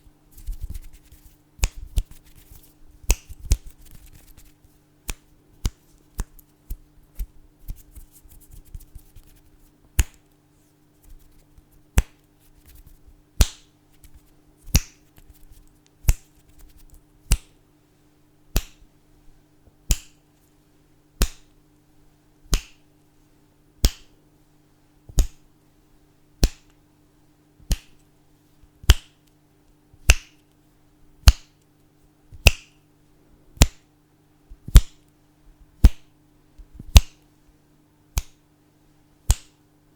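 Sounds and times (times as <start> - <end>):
fingers snapping: 0.4 - 10.3, 11.0 - 17.6, 18.5 - 18.8, 19.9 - 20.2, 21.2 - 21.5, 22.5 - 22.8, 23.8 - 24.1, 25.1 - 25.4, 26.4 - 26.8, 27.7 - 28.0, 28.8 - 29.4, 30.0 - 30.4, 31.2 - 31.6, 32.4 - 32.8, 33.6 - 33.8, 36.8 - 37.2, 38.2 - 38.4, 39.3 - 39.6
soft rustles: 10.4 - 11.8.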